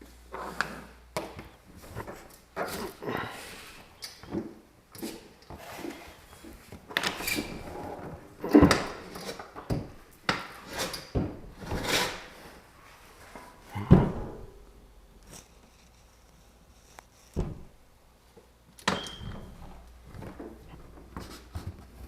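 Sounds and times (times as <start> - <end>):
refrigerator doors knocking and clunking: 13.8 - 14.6.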